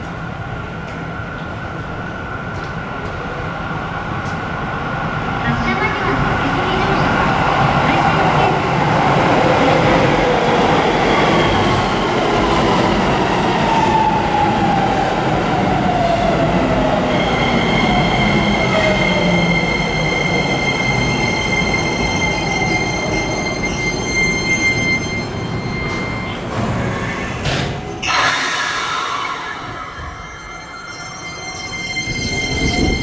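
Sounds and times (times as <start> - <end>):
train running noise: 16.6 - 33.0
train inverter whine: 17.3 - 33.0.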